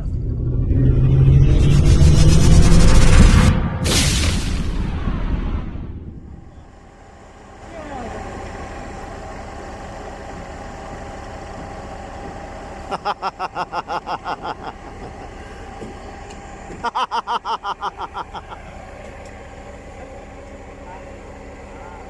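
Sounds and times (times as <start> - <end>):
rapid high-pitched pulses: 0.0 - 3.8
concrete pump engine rumble: 6.1 - 22.0.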